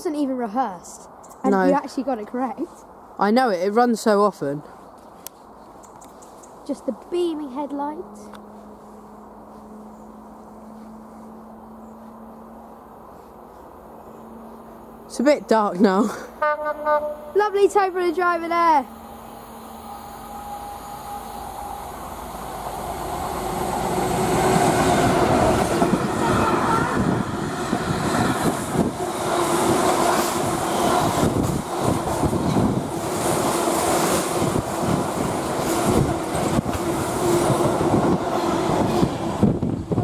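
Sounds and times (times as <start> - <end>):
freight train rumble: 6.6 - 40.0
faint whine: 16.9 - 23.0.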